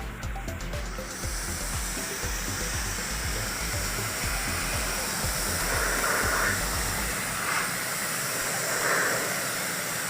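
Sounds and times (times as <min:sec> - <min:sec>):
music: 0:00.0 - 0:07.7
water spraying hiss: 0:00.0 - 0:10.0.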